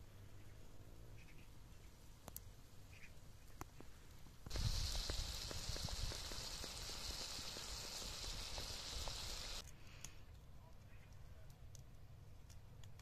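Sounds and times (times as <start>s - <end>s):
vegetables sizzling in a pan: 4.5s - 9.6s.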